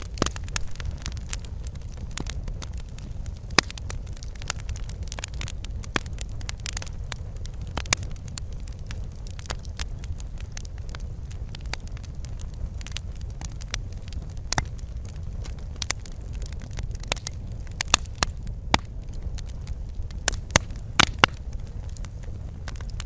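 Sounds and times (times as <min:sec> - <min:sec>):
fire popping and snapping: 0:00.0 - 0:23.0
wood fire rumbling: 0:00.0 - 0:23.0.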